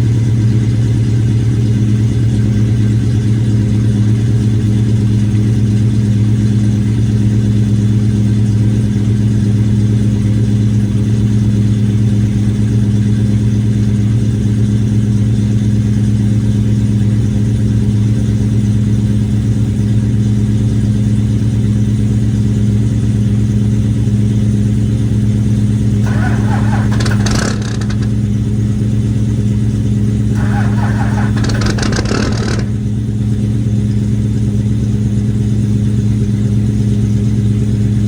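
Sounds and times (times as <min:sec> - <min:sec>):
car engine idling: 0:00.0 - 0:38.0.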